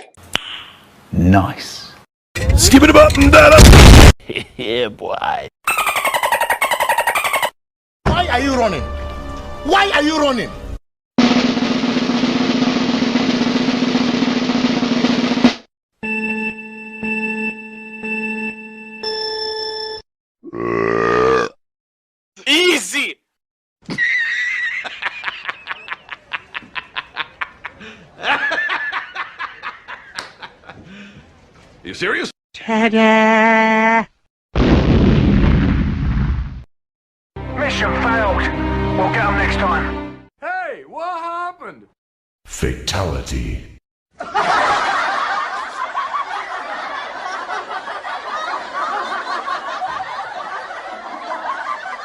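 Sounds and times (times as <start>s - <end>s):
audience laughter: 24.5s - 30.8s, 44.2s - 52.0s.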